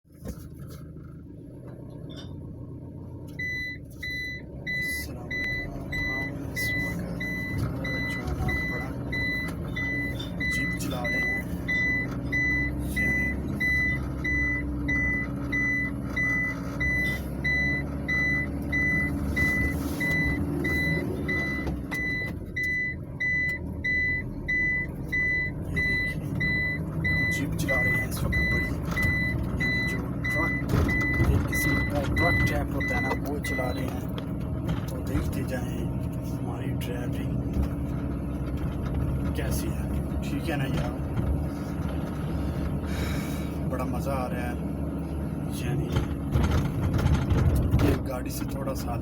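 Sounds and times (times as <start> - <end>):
truck engine rumbling: 0.0 - 49.0
electronic warning beeper: 3.4 - 34.0.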